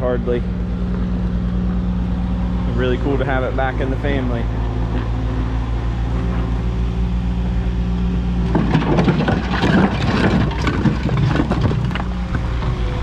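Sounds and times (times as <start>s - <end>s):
engine idling: 0.0s - 13.0s
clattering and rustling: 8.4s - 12.7s.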